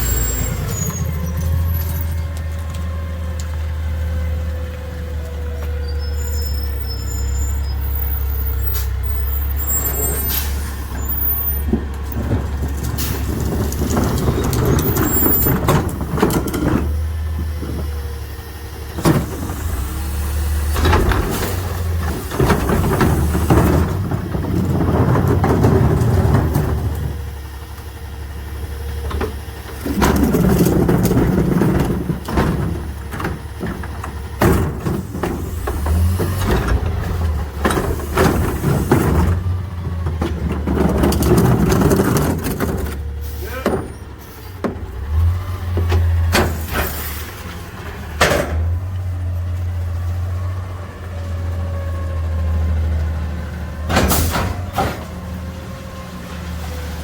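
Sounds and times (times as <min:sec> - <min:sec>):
garbage truck engine running: 0:00.0 - 0:57.0
recyclables clanking in compactor: 0:05.2 - 0:57.0.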